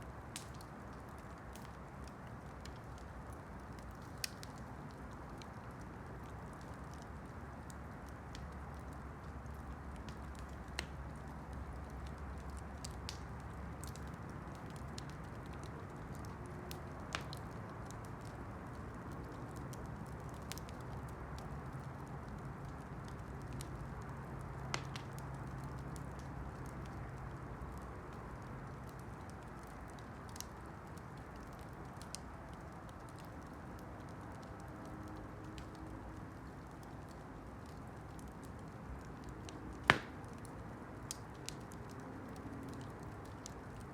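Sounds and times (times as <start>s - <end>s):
campfire crackling and popping: 0.0s - 43.9s
sharp fire pops: 39.8s - 40.5s.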